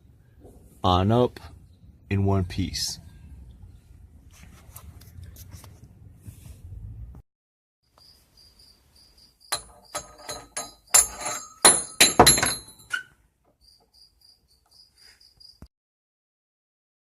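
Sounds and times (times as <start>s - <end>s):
cricket chirping: 7.8s - 10.3s, 12.9s - 15.7s
metal clanks and knocks: 9.5s - 13.1s.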